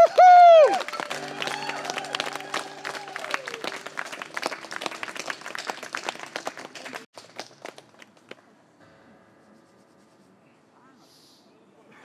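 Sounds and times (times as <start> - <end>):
small audience clapping: 0.0 - 8.6.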